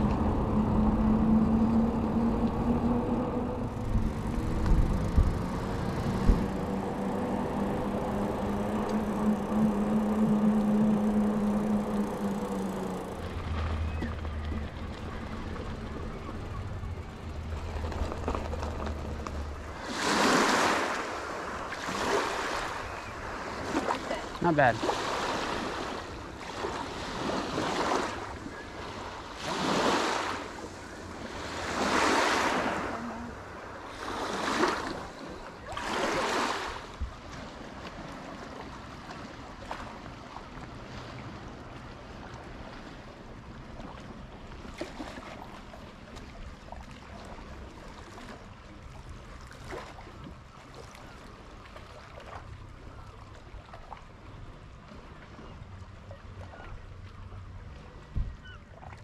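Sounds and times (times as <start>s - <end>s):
waves washing onto shore: 0.0s - 55.8s
faint water splashes: 0.0s - 59.0s.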